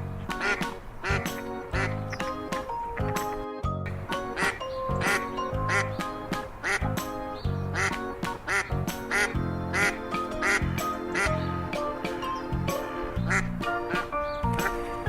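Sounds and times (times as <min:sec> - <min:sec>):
light background music: 0:00.0 - 0:15.0
duck quacking: 0:00.3 - 0:02.2, 0:04.2 - 0:07.1, 0:07.7 - 0:11.8, 0:13.2 - 0:14.8.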